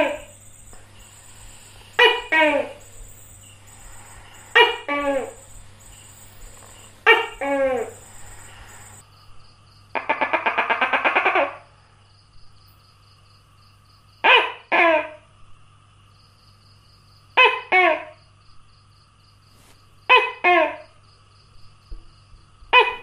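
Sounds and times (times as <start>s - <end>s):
gecko calling: 0.0s - 9.0s
gecko rattling pulses: 0.0s - 9.0s.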